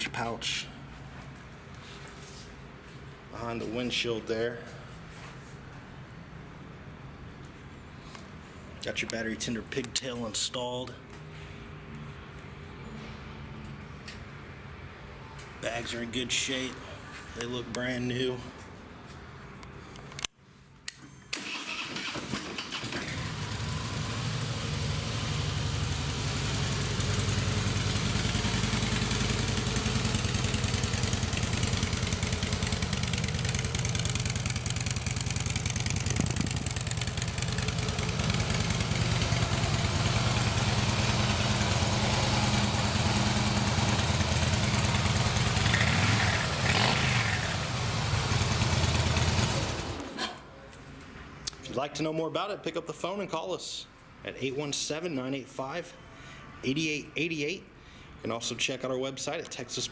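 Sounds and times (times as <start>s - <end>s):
motorcycle electric starter: 21.0s - 50.2s
motorcycle engine idling: 23.1s - 49.9s.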